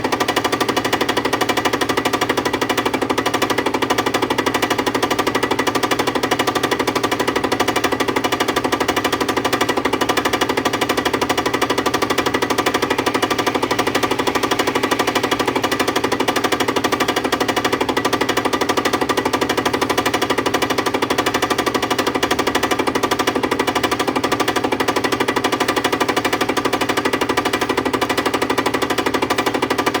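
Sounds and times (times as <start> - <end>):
steady machine hum: 9.8 - 23.0.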